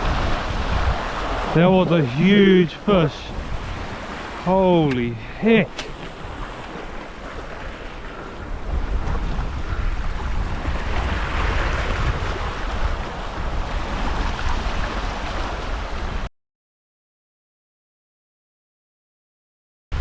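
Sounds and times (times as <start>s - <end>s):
sea waves washing: 0.0s - 16.3s
wind buffeting microphone: 0.0s - 16.3s.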